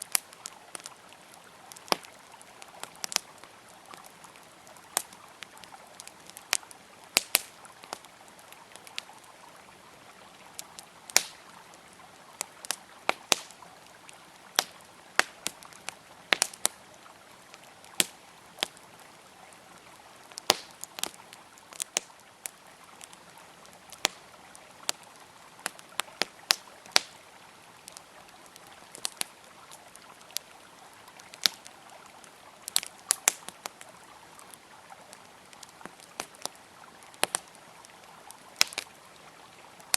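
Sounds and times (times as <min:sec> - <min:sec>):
campfire crackling: 0:00.0 - 0:39.9
river flowing: 0:00.0 - 0:39.9.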